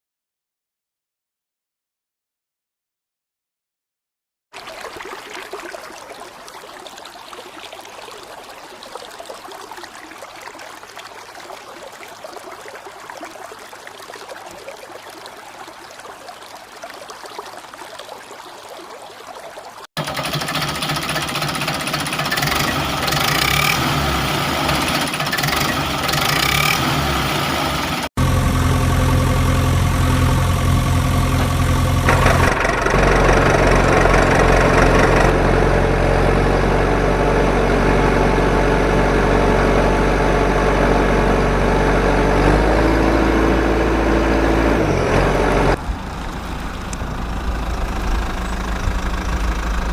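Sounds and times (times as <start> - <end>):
tractor engine running: 20.0 - 49.9.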